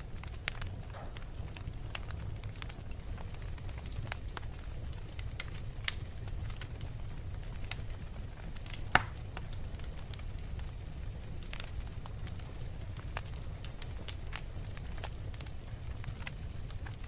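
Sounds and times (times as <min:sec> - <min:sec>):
logs burning in fireplace: 0:00.0 - 0:17.0
sharp loud fire pop: 0:09.0 - 0:09.2.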